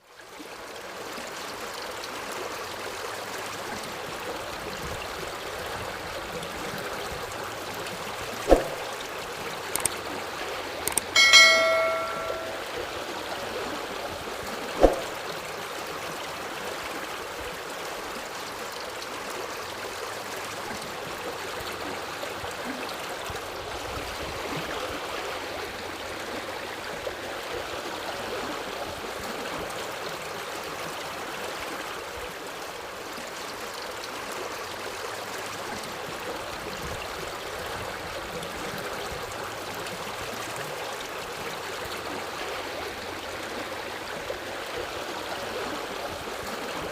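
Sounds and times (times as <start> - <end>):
sharp knock: 8.5 - 8.8.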